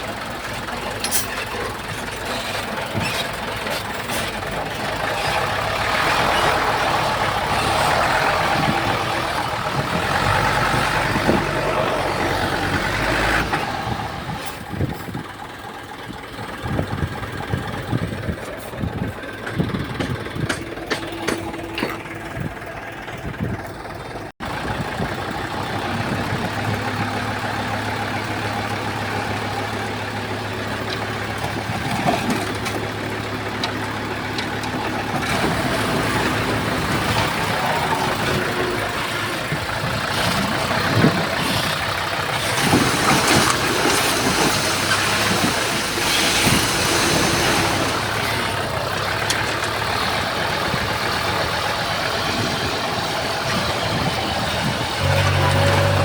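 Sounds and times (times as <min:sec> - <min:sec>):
bulldozer diesel engine: 0:00.0 - 0:56.0
short knocks and clanks: 0:19.4 - 0:22.4.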